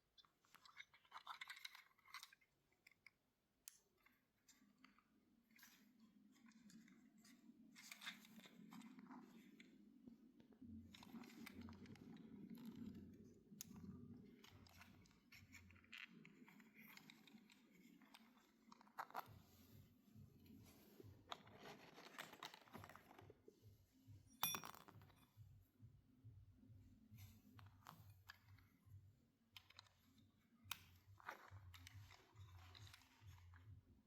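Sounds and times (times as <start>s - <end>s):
clicks and clinks of small objects: 0.2s - 3.9s, 24.3s - 25.4s.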